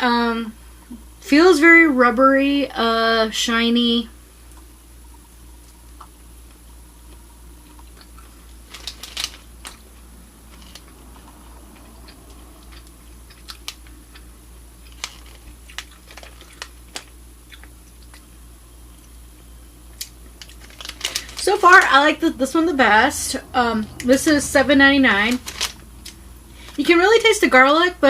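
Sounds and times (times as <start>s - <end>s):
steady low hum: 0.0s - 28.0s
crackles: 4.4s - 27.6s
eating noises: 7.1s - 18.4s.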